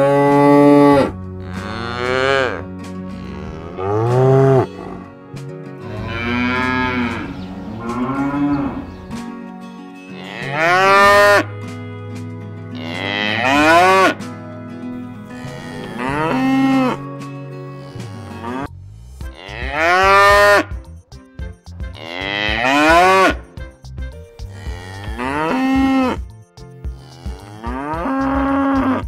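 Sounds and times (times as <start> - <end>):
cattle mooing: 0.0 - 5.2, 5.8 - 9.1, 10.1 - 17.1, 17.7 - 18.7, 19.3 - 20.6, 24.6 - 26.2.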